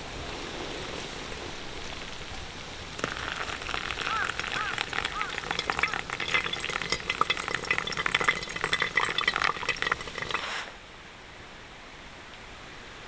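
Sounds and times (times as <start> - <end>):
dense crackling and popping: 2.8 - 10.7.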